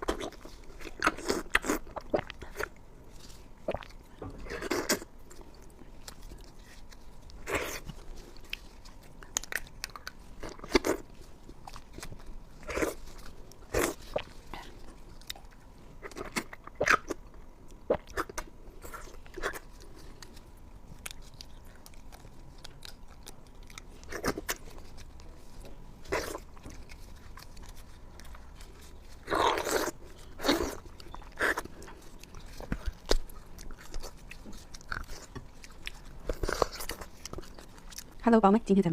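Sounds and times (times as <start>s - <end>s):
crisp bites and chewing: 0.0s - 38.2s.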